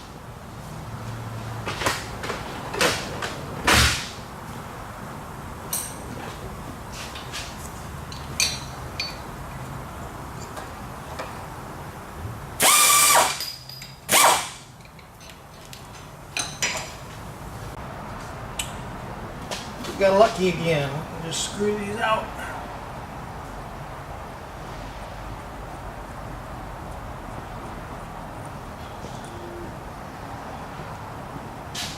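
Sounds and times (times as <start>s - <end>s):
power drill bursts: 12.6s - 13.4s.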